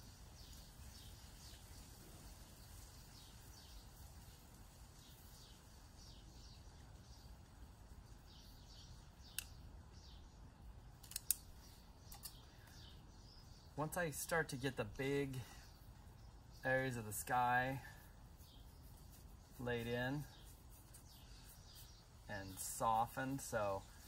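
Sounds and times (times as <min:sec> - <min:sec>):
faint bird chirps: 0:00.0 - 0:24.0
sharp clicks: 0:09.3 - 0:09.6, 0:11.0 - 0:11.5, 0:12.1 - 0:12.4.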